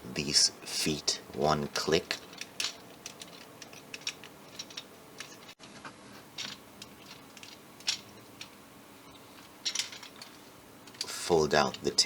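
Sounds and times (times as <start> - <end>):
ratcheting joints: 1.3 - 5.6, 6.4 - 12.0
plastic toy clicking: 2.1 - 5.5.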